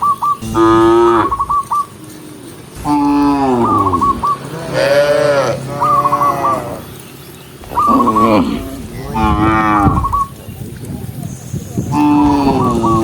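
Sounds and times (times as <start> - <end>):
cattle mooing: 0.4 - 1.5, 2.8 - 6.9, 7.6 - 10.3.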